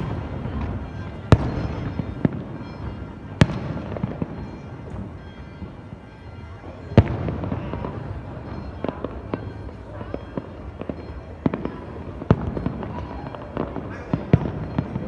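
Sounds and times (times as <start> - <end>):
fireworks loud bangs: 0.0 - 5.1, 7.0 - 15.0
fireworks popping and crackling: 0.0 - 5.1.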